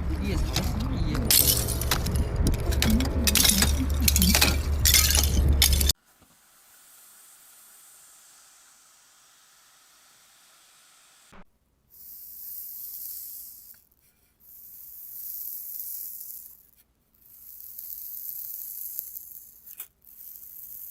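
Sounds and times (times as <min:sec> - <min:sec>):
high hissing spray bursts: 0:06.4 - 0:13.9.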